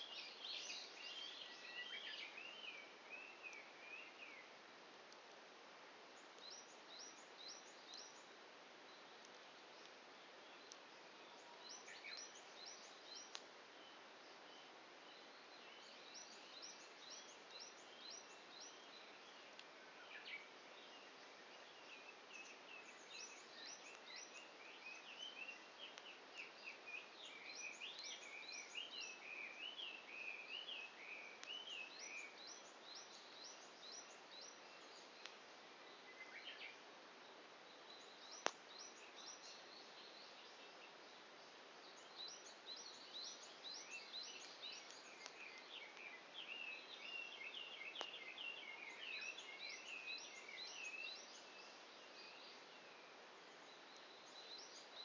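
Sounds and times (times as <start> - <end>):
quiet hiss: 0.0 - 55.0
songbirds singing: 0.0 - 55.0
campfire pop: 38.4 - 38.7.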